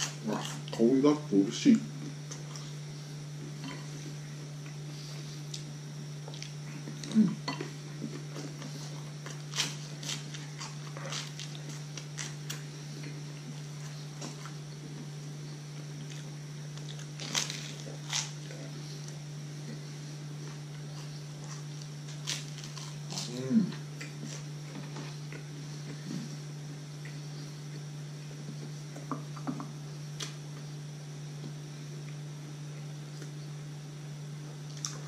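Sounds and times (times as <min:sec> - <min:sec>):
chewing toasted bread: 0:00.0 - 0:00.9, 0:01.9 - 0:33.6, 0:34.4 - 0:35.0
crisp crust crunches: 0:08.0 - 0:15.2, 0:16.0 - 0:19.1, 0:20.5 - 0:25.3.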